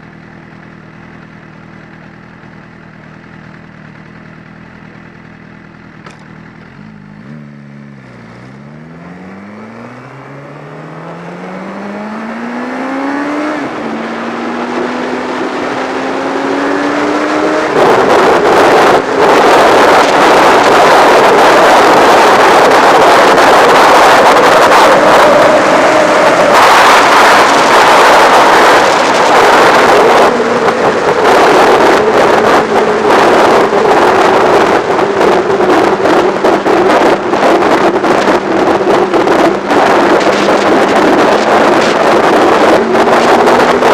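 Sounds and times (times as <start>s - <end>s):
motorcycle engine accelerating: 0.0s - 43.9s
wind rushing over microphone: 8.6s - 43.9s.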